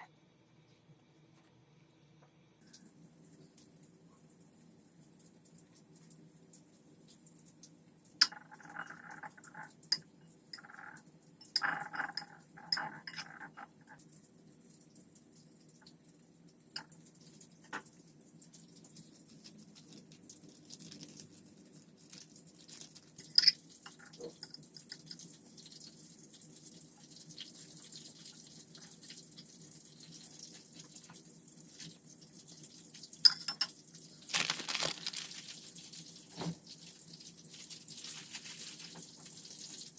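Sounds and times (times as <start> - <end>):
tap water running: 2.6 - 39.9
dishes and utensils clinking: 11.4 - 13.7, 23.3 - 25.0, 33.2 - 35.3.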